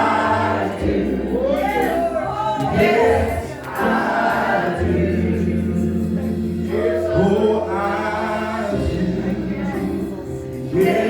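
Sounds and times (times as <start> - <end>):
group singing gospel: 0.0 - 11.0.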